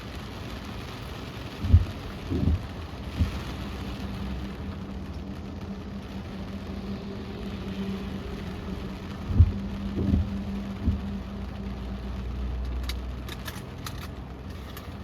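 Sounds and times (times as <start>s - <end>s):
car engine idling: 0.0s - 15.0s
rain on car: 0.0s - 15.0s
dull low thumps: 1.6s - 4.0s, 9.1s - 11.6s.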